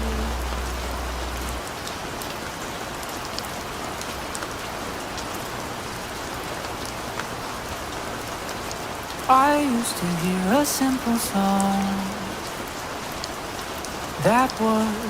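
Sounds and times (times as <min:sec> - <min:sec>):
low bass note: 0:00.0 - 0:01.8
steady rain falling: 0:00.0 - 0:15.0.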